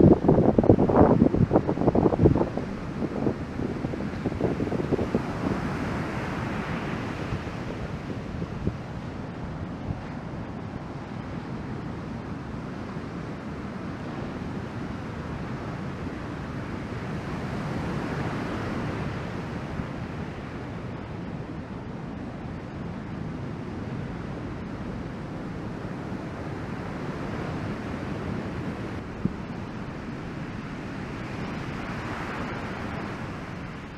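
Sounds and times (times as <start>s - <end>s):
ocean surf breaking: 0.0s - 12.4s, 22.4s - 33.9s.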